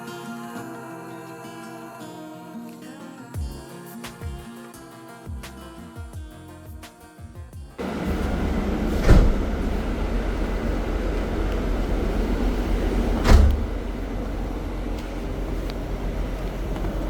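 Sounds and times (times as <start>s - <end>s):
bus rumbling inside cabin: 7.8s - 17.0s.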